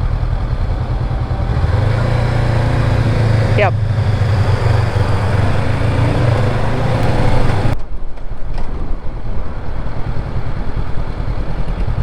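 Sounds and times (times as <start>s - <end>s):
low uneven engine rumble: 0.0s - 7.8s
motorcycle engine hum: 0.0s - 7.8s, 9.1s - 12.0s
wind and road noise: 0.0s - 12.0s.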